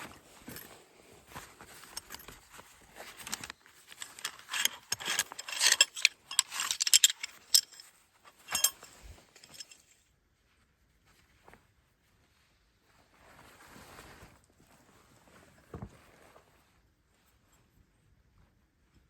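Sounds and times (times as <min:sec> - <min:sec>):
light clinking and rattling: 0:00.0 - 0:10.0.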